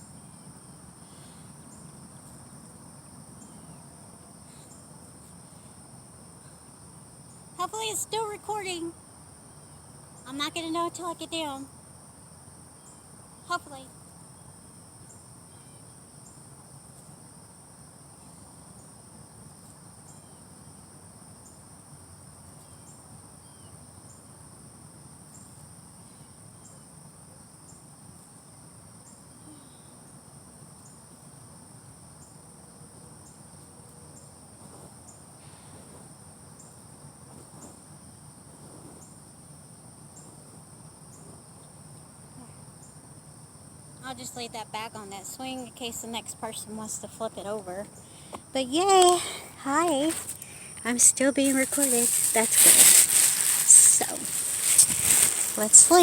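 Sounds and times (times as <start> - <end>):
insect high-pitched trill: 0.0 - 27.1, 40.9 - 56.0
insect chirp: 0.0 - 56.0.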